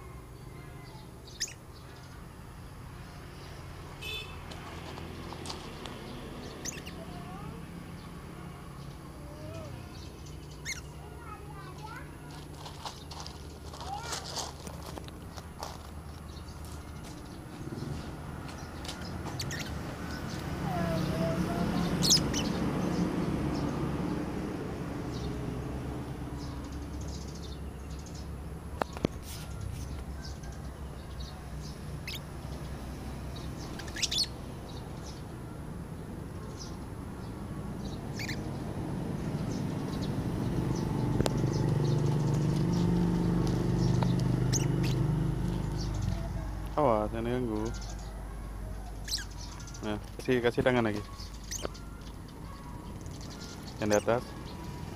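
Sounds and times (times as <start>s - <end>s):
lovebird chirps: 1.2s - 1.6s, 6.5s - 7.1s, 10.2s - 11.1s, 19.4s - 21.0s, 32.0s - 32.3s, 33.6s - 34.4s, 38.1s - 38.5s, 43.9s - 45.0s, 49.0s - 49.8s, 51.0s - 52.2s.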